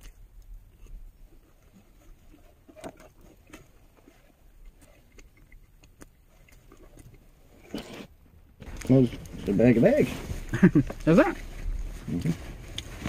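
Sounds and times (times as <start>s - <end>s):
low rumble: 8.6s - 13.0s.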